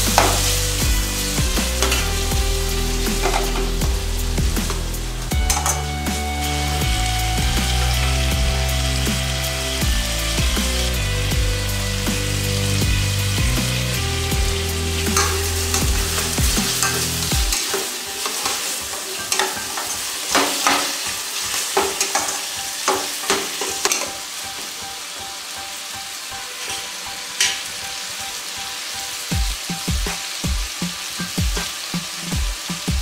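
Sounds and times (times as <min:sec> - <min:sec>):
vegetables sizzling in oil: 0:00.0 - 0:33.0
spatula scraping and clinking pan: 0:03.0 - 0:03.8, 0:15.1 - 0:24.2.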